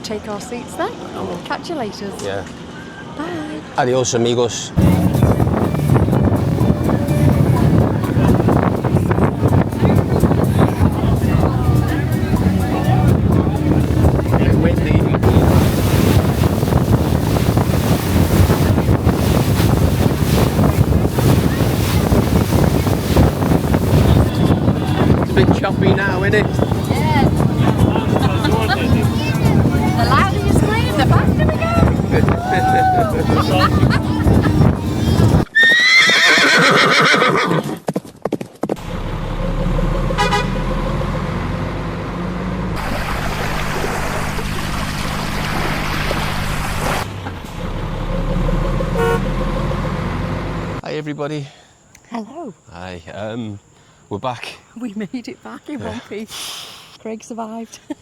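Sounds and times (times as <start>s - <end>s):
wind buffeting microphone: 4.8s - 35.5s
boat engine: 4.8s - 37.1s, 38.8s - 50.8s
water rushing: 4.8s - 37.2s, 42.6s - 49.5s
horse whinnying: 35.5s - 37.9s
hooves clattering: 37.6s - 38.8s
brief tone: 48.0s - 49.7s.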